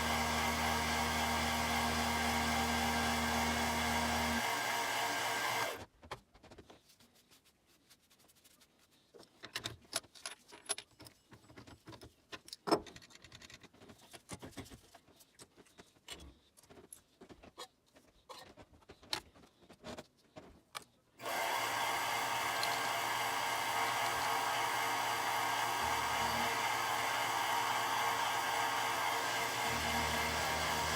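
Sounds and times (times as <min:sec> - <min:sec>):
whirring motor: 0:00.0 - 0:05.9, 0:21.2 - 0:30.9.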